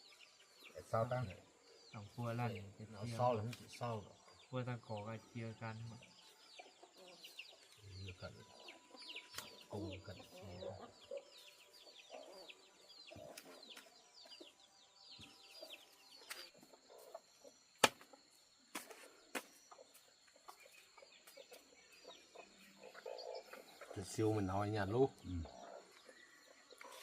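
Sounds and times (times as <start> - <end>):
high peeping chirps: 0.0 - 18.5
chickens clucking: 5.7 - 27.0.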